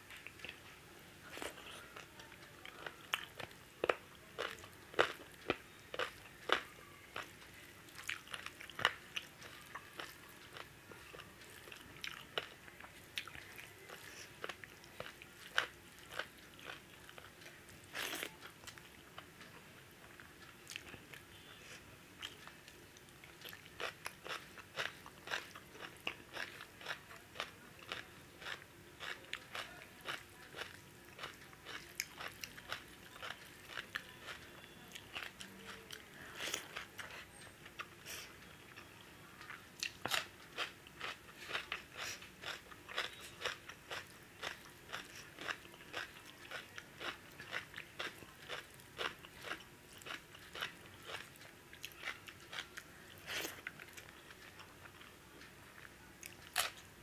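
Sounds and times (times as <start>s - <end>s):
person chewing with sharp clicks: 39.4s - 56.8s.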